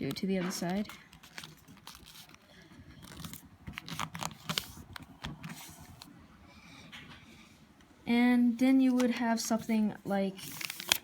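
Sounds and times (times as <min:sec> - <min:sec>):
paper crinkling and crackling: 0:00.0 - 0:06.1, 0:08.9 - 0:11.0.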